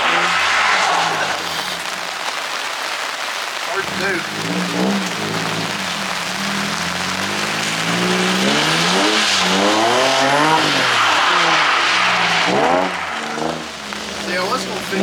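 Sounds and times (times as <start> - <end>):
car engine revving: 0.0 - 2.4, 3.7 - 15.0
tyres hissing on wet surface: 0.0 - 15.0.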